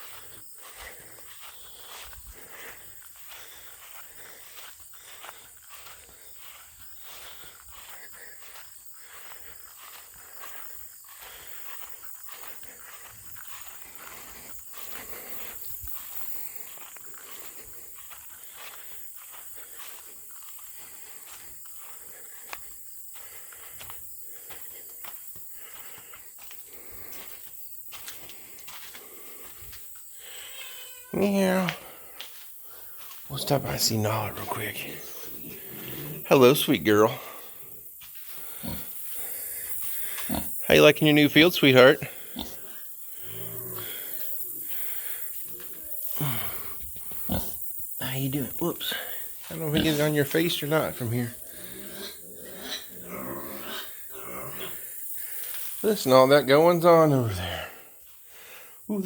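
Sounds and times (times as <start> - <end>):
pig snuffling and breathing: 0.0 - 30.3, 34.4 - 36.3, 37.0 - 40.7
footsteps scuffing outdoors: 0.0 - 40.7, 48.4 - 51.5, 55.2 - 58.4
pig grunting: 34.4 - 37.5, 38.4 - 40.8, 42.0 - 47.6, 49.5 - 50.2, 51.4 - 54.8.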